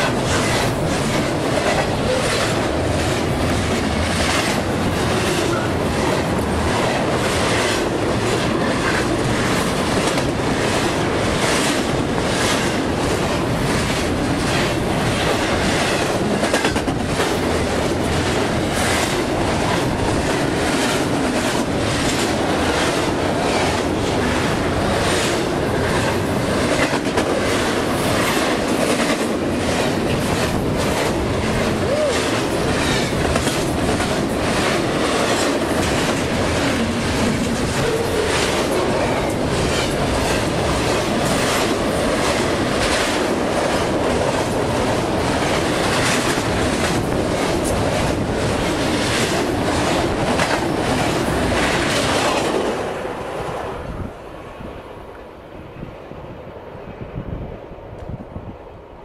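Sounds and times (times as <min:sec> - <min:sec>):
wheels clicking over rail joints: 0:00.0 - 0:52.7
freight train passing: 0:00.0 - 0:59.0.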